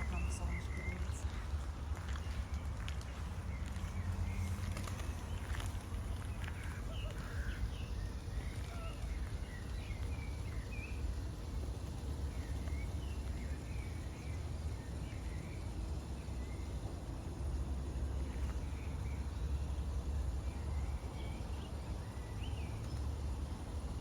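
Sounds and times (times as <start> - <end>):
small birds chirping: 0.0 - 24.0
steady low rumble: 0.0 - 24.0.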